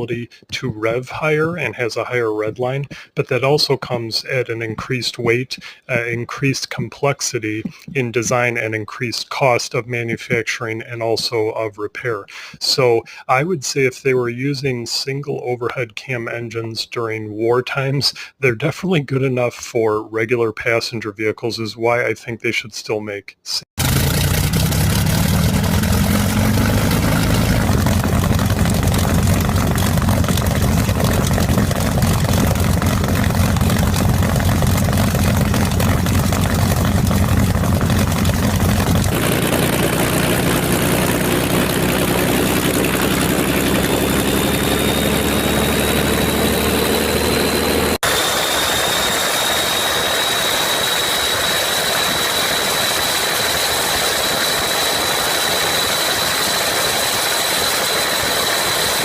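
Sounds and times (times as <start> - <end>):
engine high whine: 23.8 - 59.0
engine low drone: 23.8 - 59.0.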